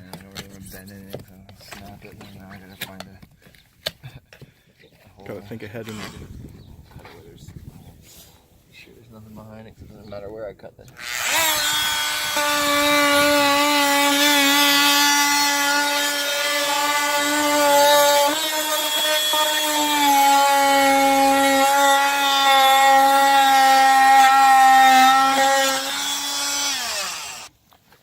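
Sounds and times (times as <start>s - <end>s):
power cutting tool whining: 11.0s - 27.5s.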